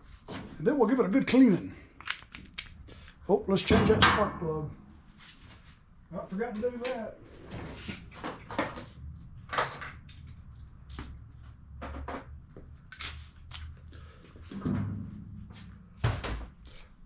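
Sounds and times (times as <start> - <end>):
tools clicking and clattering: 2.0 - 4.4, 13.4 - 13.9.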